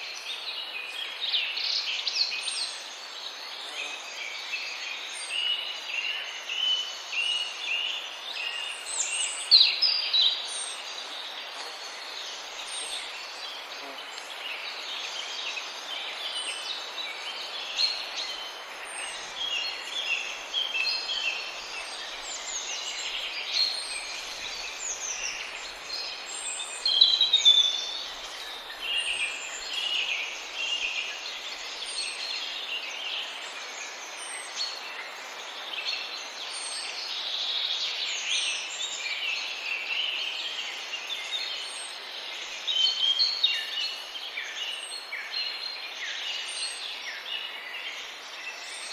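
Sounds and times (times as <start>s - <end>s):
steady hiss: 0.0s - 48.9s.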